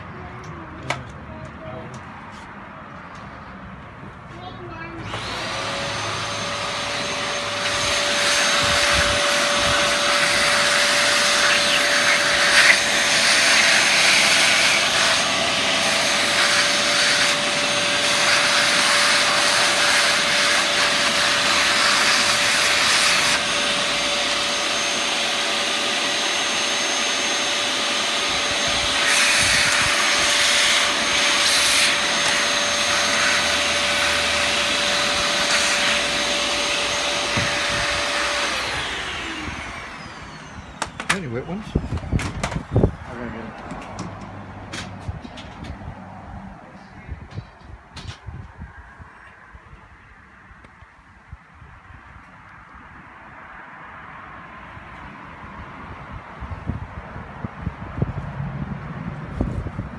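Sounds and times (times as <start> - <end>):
vacuum cleaner motor whining: 5.0 - 44.1.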